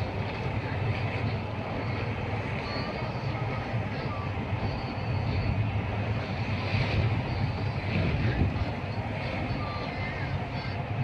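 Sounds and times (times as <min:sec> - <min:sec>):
boat engine droning: 0:00.0 - 0:01.8.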